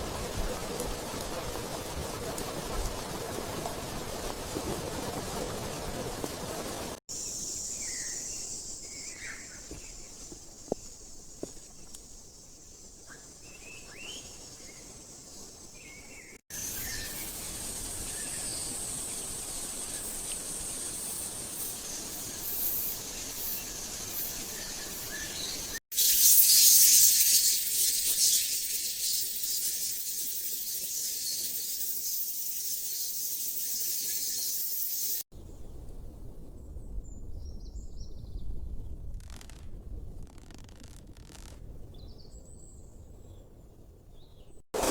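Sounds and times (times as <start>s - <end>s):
dense high-pitched hiss: 7.1s - 35.3s
high insect drone: 16.6s - 35.2s.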